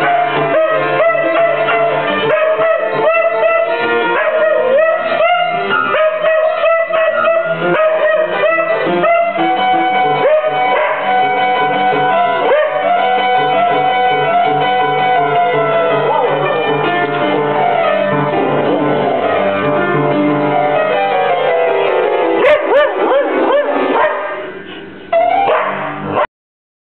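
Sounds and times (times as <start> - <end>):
dog howling: 0.0 - 13.6, 15.4 - 16.7, 22.4 - 24.4
piano chords: 0.0 - 26.3.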